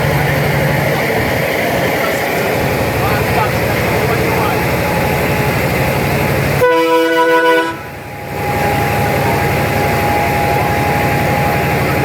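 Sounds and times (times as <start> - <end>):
vehicle noise: 0.0 - 12.0
vehicle horn honking: 6.6 - 7.9.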